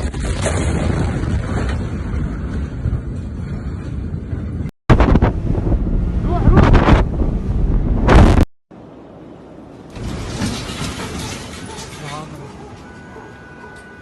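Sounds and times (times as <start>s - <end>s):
wind buffeting microphone: 0.7s - 8.4s
loud low rumble: 4.2s - 8.5s.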